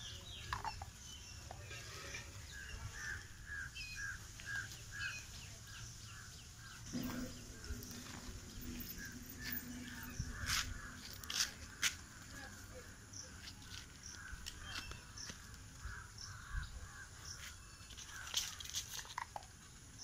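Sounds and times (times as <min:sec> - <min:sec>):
low steady hum: 0:05.3 - 0:13.4.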